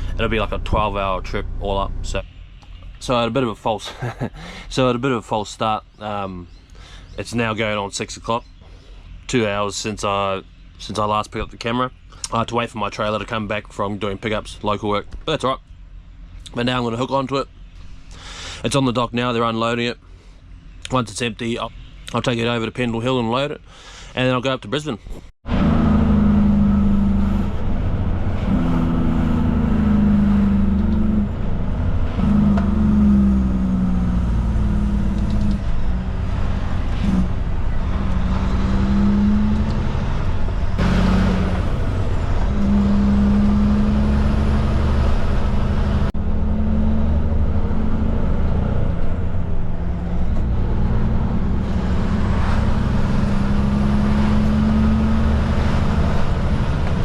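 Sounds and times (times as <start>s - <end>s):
truck diesel engine shifting gears: 0.0s - 5.4s, 25.4s - 57.0s.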